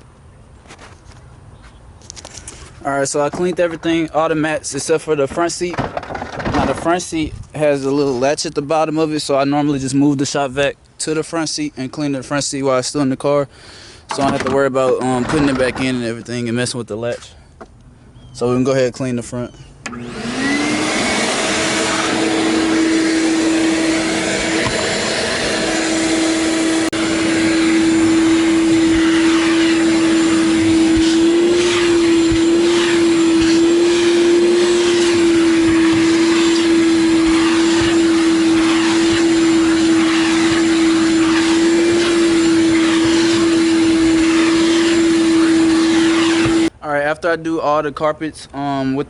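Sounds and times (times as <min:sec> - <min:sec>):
shop vac motor whine: 0:19.8 - 0:46.7
vacuum suction on carpet: 0:19.9 - 0:46.7.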